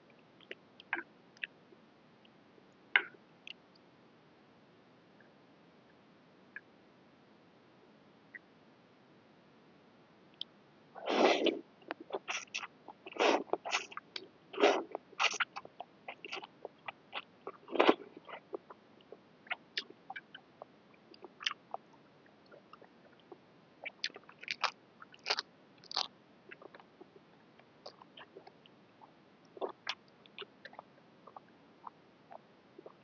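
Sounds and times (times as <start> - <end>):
person chewing noodles: 12.1 - 14.0, 14.6 - 18.6, 23.8 - 26.8.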